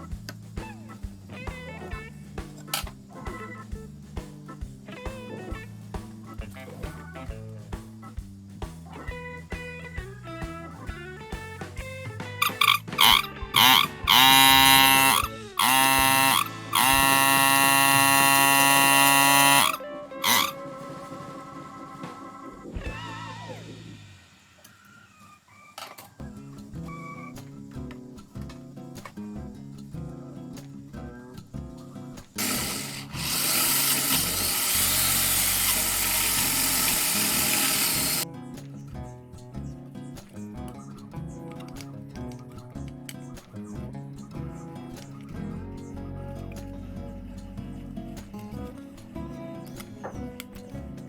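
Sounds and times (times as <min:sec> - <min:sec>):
background music: 0:00.0 - 0:24.2, 0:26.2 - 0:51.0
power tool sanding: 0:12.5 - 0:20.5, 0:32.4 - 0:38.2
small electric motor buzzing: 0:12.5 - 0:20.6, 0:32.4 - 0:38.2.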